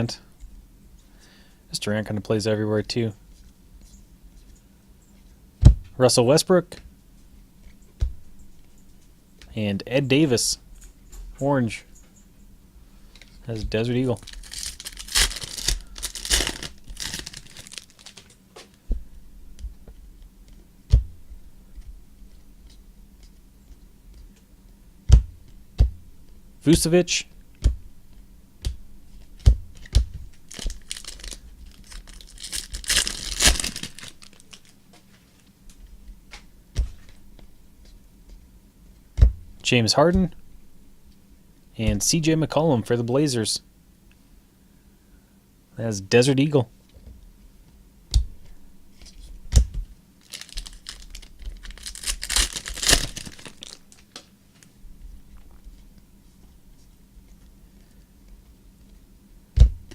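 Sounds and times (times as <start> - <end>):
plastic packaging crinkling and tearing: 13.4 - 18.4, 30.5 - 34.8, 50.2 - 54.1.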